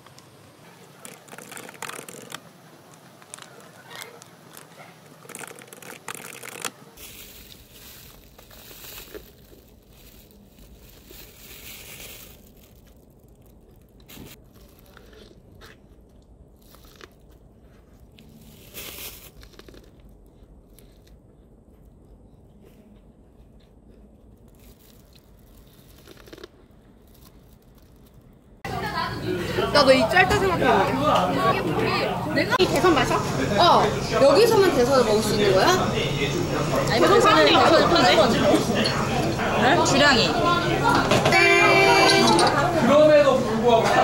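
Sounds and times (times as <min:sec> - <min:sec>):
chewing corn: 0:00.6 - 0:28.5
plastic wrap crinkling: 0:00.8 - 0:21.1, 0:24.2 - 0:28.6.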